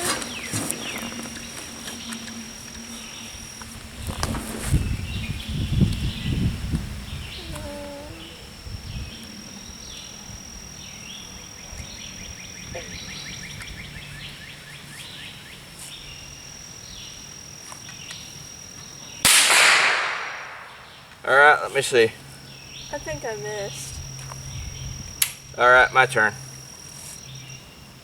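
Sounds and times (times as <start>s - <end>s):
birds chirping: 0.0s - 19.3s, 20.2s - 26.5s
rifle shot echoing: 19.2s - 21.1s.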